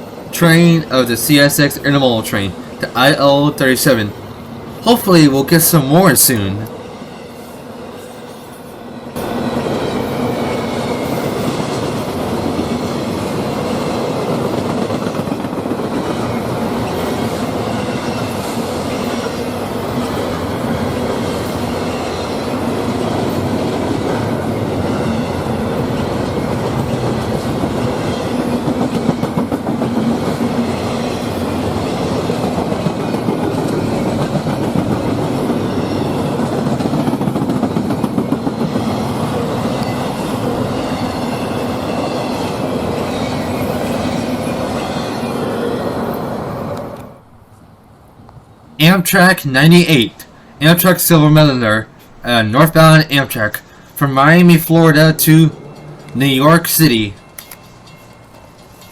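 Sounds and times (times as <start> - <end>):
train wheels rumbling on rails: 0.0 - 48.8
clickety-clack over rail joints: 9.2 - 45.3.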